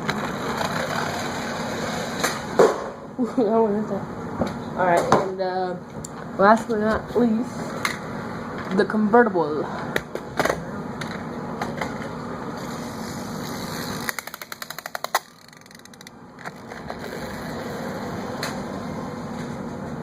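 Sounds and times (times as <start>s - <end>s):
toy car spring motor clicking: 13.2s - 17.4s.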